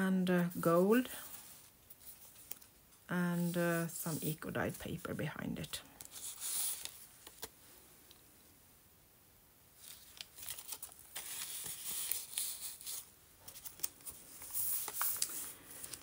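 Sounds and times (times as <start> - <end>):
paper pages rustling and turning: 0.5 - 5.1, 5.9 - 7.6, 9.8 - 16.0.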